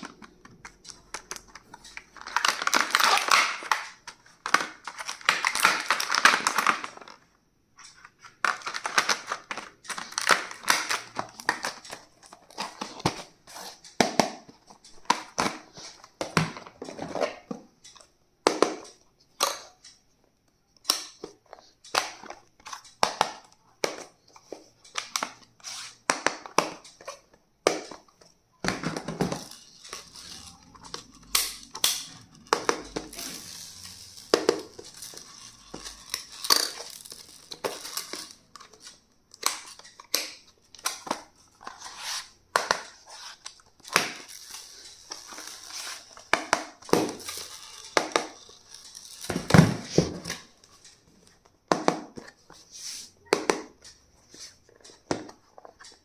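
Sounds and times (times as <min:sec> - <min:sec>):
plastic packaging crinkling: 0:01.0 - 0:07.0
small objects clicking on hard surface: 0:28.6 - 0:40.4, 0:43.8 - 0:50.8.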